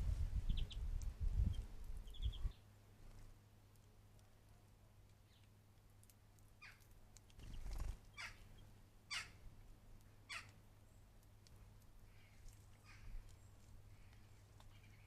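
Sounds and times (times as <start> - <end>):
faint steady hum: 0.0 - 15.0
bird calling: 7.5 - 8.5, 9.1 - 9.4, 10.3 - 10.6.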